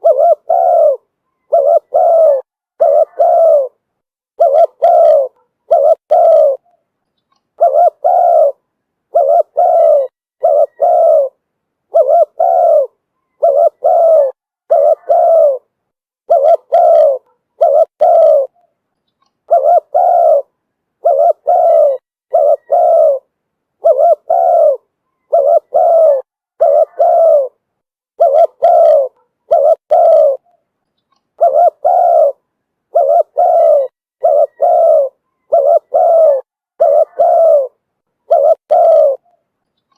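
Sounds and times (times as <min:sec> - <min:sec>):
dove cooing: 0:00.0 - 0:06.8, 0:07.6 - 0:18.7, 0:19.5 - 0:30.6, 0:31.4 - 0:39.4.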